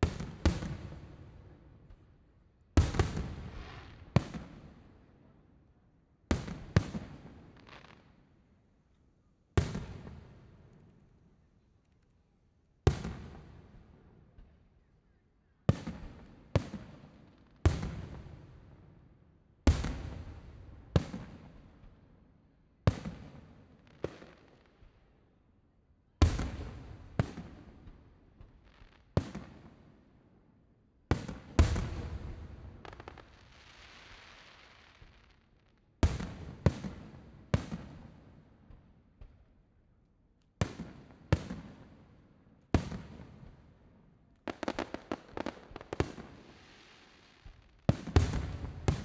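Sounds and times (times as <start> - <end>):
firework shells booming: 47.9 - 49.0.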